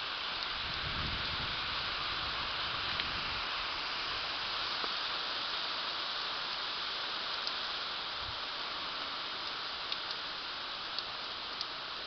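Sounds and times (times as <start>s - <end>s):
steady rain hissing: 0.0s - 12.0s
faint drip ticks: 0.3s - 0.9s, 4.7s - 5.1s, 6.5s - 12.0s.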